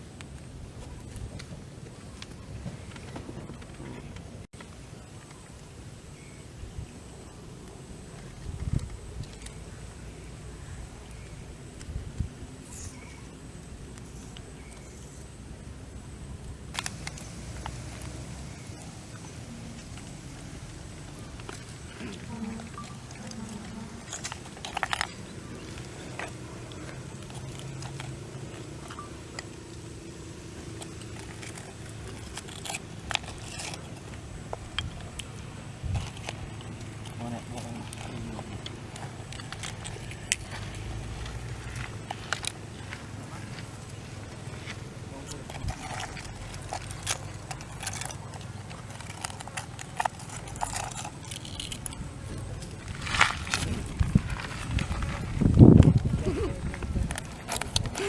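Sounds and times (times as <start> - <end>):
steady low hum: 0.0 - 58.0
snail shells crunching: 16.4 - 58.0.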